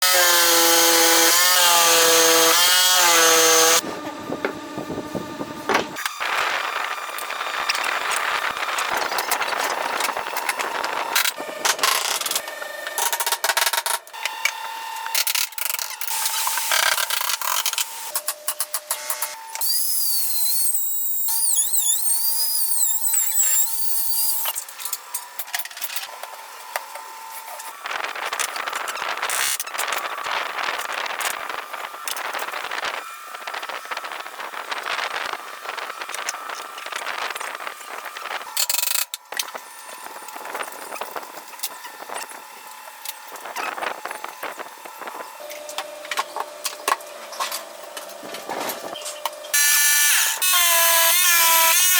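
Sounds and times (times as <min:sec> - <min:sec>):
power saw cutting wood: 0:00.0 - 0:04.1, 0:19.0 - 0:24.6, 0:49.5 - 0:51.9
electric motor whine: 0:00.0 - 0:12.9, 0:19.2 - 0:24.6.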